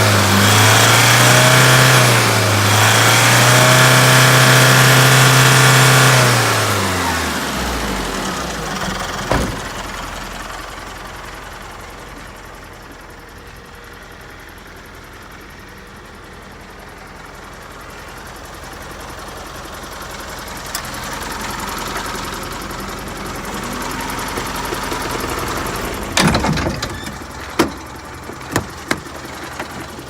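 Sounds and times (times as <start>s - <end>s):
truck engine revving: 0.0s - 12.2s, 20.7s - 30.0s.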